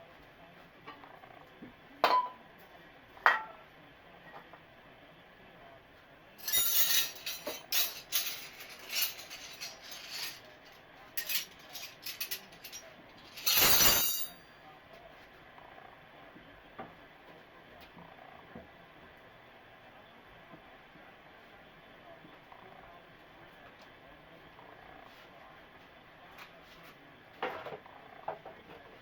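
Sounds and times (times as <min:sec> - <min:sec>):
hard objects clinking and clattering: 0:06.4 - 0:14.4.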